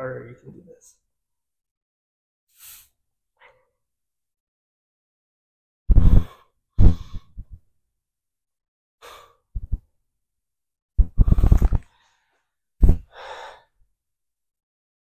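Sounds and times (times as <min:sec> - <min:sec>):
man breathing hard: 0:09.0 - 0:09.5, 0:11.1 - 0:13.8.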